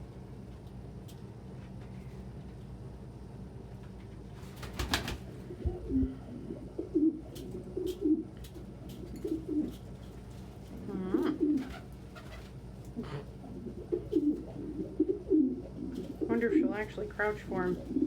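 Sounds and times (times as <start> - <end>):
pigeon cooing: 5.4 - 9.9, 10.8 - 16.9, 17.6 - 18.0.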